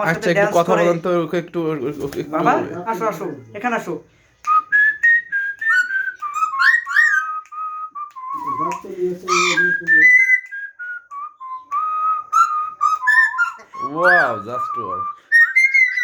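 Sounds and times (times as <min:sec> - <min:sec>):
parrot whistling a tune: 0:04.5 - 0:16.0
parrot voice-like call: 0:09.3 - 0:09.8.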